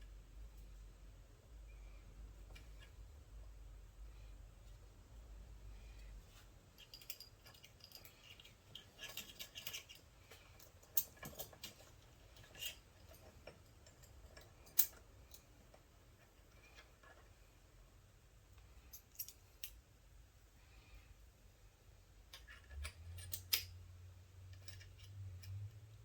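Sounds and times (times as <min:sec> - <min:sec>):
metallic clicks of hand tools: 0:12.4 - 0:15.5, 0:22.3 - 0:23.8.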